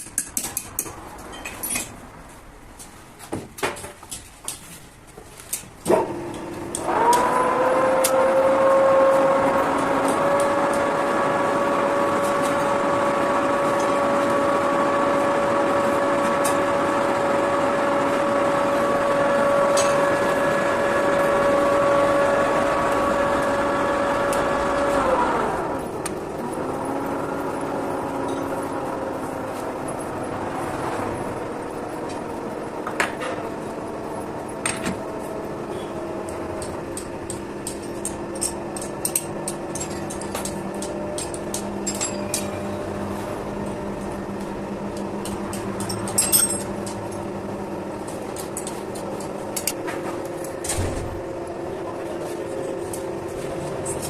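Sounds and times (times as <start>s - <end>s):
electric motor whine: 6.8s - 27.4s.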